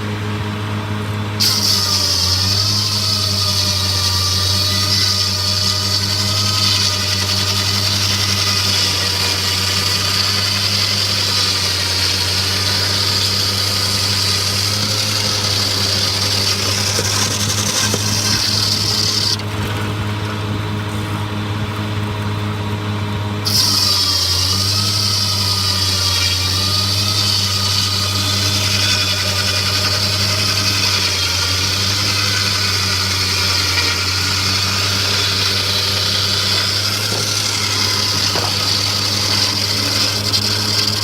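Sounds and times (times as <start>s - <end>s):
machinery engine hum: 0.0s - 1.4s, 5.4s - 23.5s.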